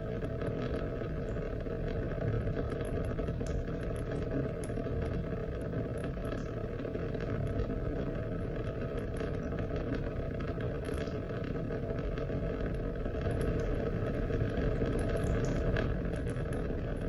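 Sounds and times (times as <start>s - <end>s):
sharp raindrop ticks: 13.1s - 17.0s.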